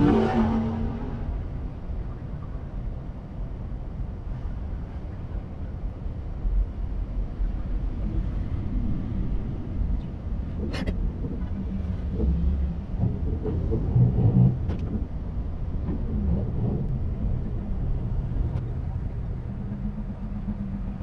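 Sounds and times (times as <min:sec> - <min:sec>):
car engines idling: 0:09.4 - 0:21.0.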